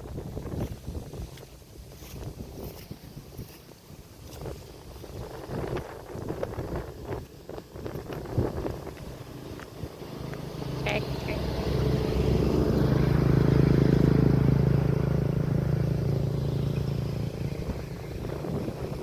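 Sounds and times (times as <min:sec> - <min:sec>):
wind noise: 0:00.0 - 0:19.0
vehicle engine passing by: 0:04.6 - 0:19.0.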